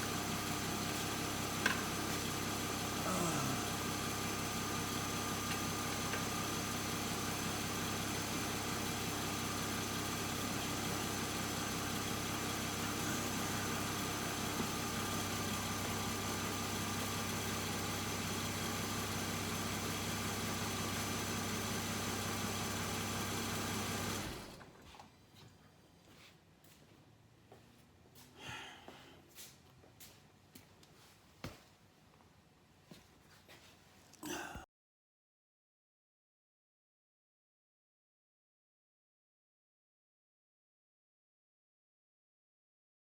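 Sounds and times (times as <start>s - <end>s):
engine humming: 0.0s - 24.8s.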